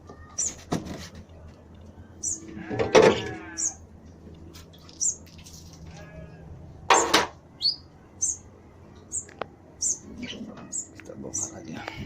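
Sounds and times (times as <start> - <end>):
small birds chirping: 0.2 - 0.7, 1.9 - 3.8, 4.7 - 5.8, 6.9 - 12.0
low steady hum: 1.1 - 12.0.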